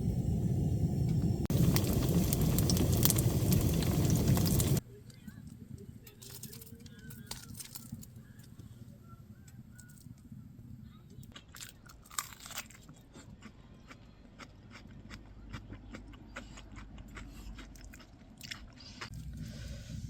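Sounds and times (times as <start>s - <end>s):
crunchy food being chewed: 11.1s - 19.4s.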